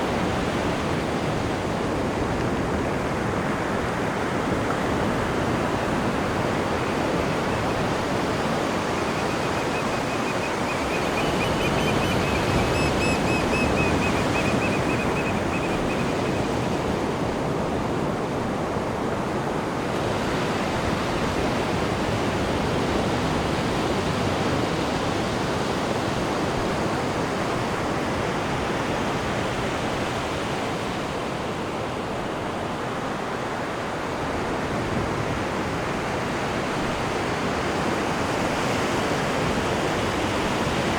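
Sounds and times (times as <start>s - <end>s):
churning sea water rushing: 0.0s - 40.9s
faint high pulsing chirp: 8.7s - 16.8s.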